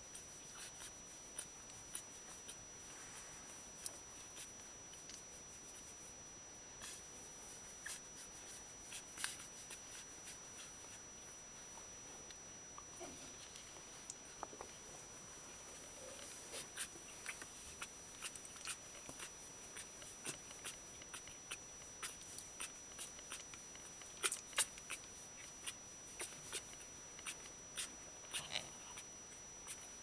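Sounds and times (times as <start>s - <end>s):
puppies clicking and ticking: 16.2s - 30.0s.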